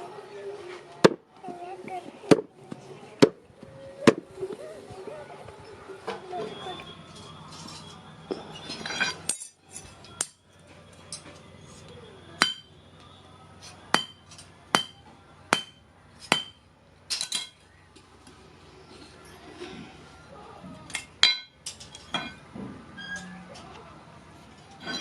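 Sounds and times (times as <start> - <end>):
hammer striking steel: 12.4 - 12.7, 13.9 - 16.6, 21.0 - 22.4.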